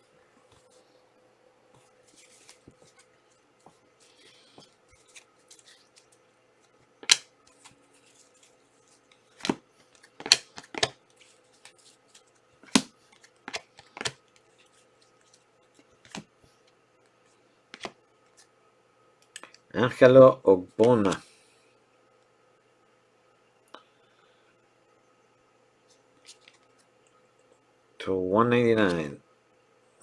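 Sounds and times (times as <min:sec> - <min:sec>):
cards and plastic packaging handled: 0:01.8 - 0:16.7, 0:17.8 - 0:18.5.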